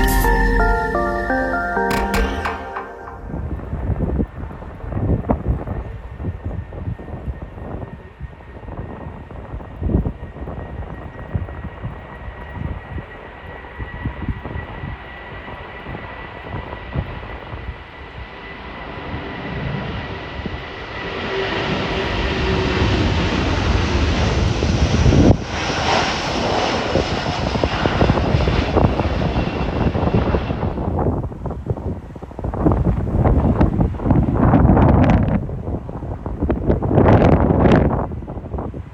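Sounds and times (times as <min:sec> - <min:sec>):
jet engines on takeoff: 0:04.0 - 0:38.9
wind buffeting microphone: 0:22.2 - 0:38.9.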